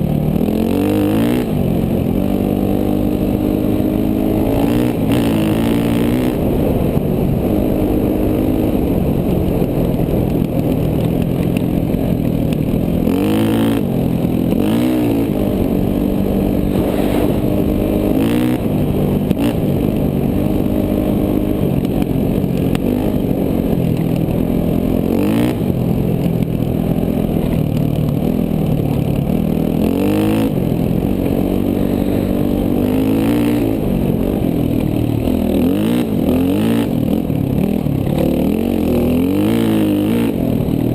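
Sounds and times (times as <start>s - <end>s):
motorcycle engine under load: 0.0s - 40.9s.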